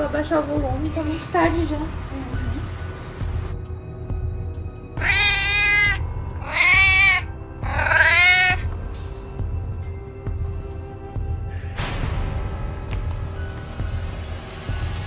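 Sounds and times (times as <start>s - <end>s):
background music: 0.0s - 15.0s
cat meowing: 5.0s - 8.7s.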